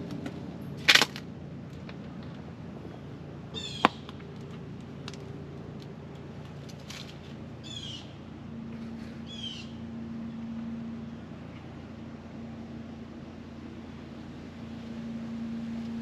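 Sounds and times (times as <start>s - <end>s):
low steady hum: 0.0s - 16.0s
bird harsh calls: 3.5s - 4.1s, 7.6s - 8.2s, 9.2s - 9.9s.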